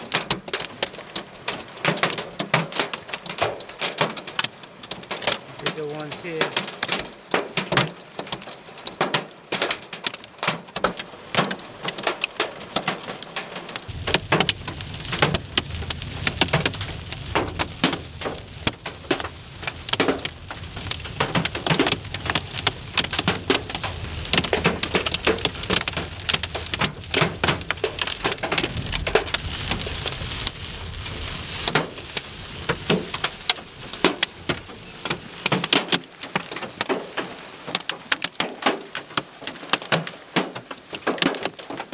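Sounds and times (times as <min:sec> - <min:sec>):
hailstones and rain pelting: 0:00.0 - 0:41.9
low rumble: 0:13.9 - 0:35.2.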